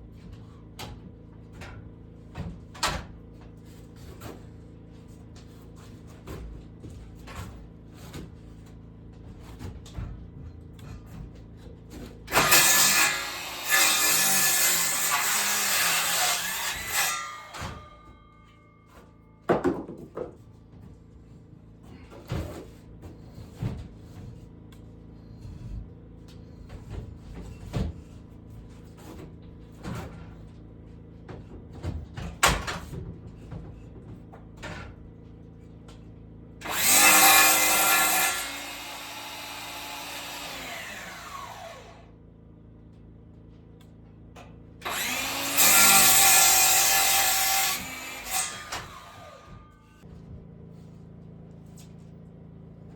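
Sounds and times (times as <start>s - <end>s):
power saw cutting: 12.3s - 17.6s, 36.6s - 42.1s, 44.8s - 49.7s
wood knocking and clattering: 19.5s - 20.4s.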